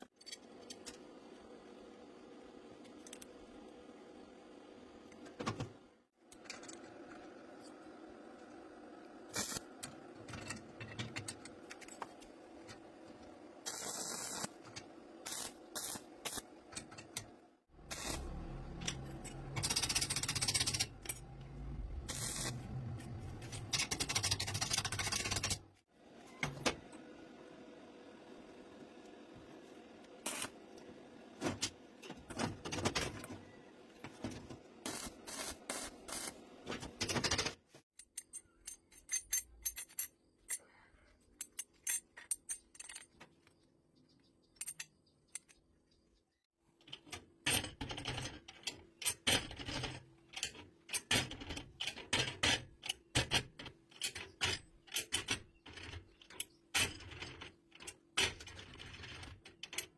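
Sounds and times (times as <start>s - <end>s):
metal parts clicking and clanking: 6.2s - 7.8s, 9.4s - 13.8s, 14.4s - 25.7s, 36.1s - 43.6s, 44.4s - 45.7s, 46.8s - 59.9s.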